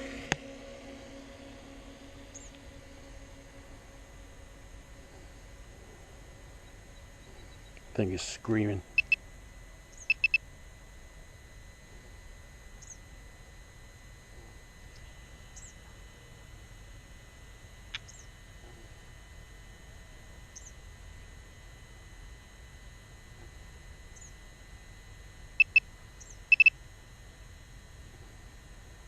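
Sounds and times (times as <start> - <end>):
low background hum: 0.0 - 29.0
small bird chirping: 2.3 - 2.6, 9.0 - 9.2, 9.9 - 10.4, 12.8 - 13.0, 14.9 - 15.8, 18.0 - 18.4, 20.5 - 20.8, 24.1 - 24.4, 25.6 - 26.7
sharp electronic beeps: 9.0 - 9.2, 10.0 - 10.4, 25.6 - 25.8, 26.5 - 26.7.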